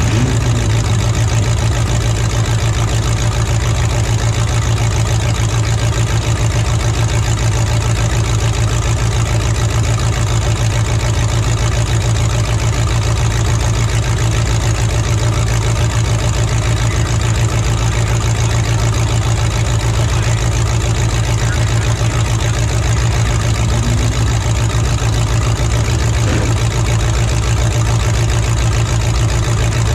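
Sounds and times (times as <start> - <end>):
truck engine idling: 0.0 - 29.9.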